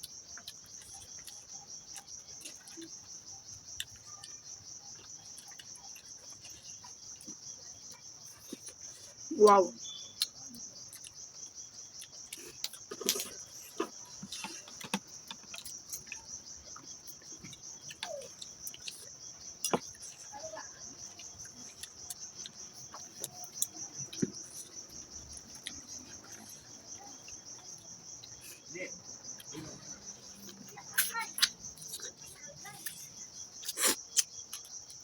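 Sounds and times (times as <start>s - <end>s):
eating clicks and smacks: 0.0s - 20.2s, 21.0s - 28.4s, 30.4s - 35.0s
crickets chirring: 0.0s - 35.0s.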